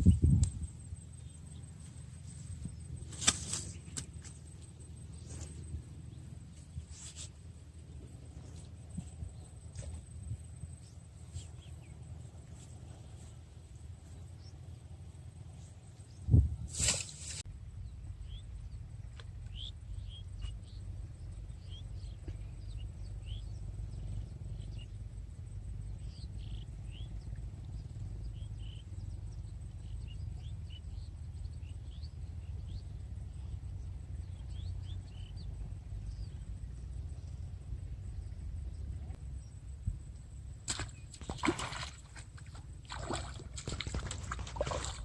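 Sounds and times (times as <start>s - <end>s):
steady low rumble: 0.0s - 41.1s
birds chirping: 25.9s - 39.6s.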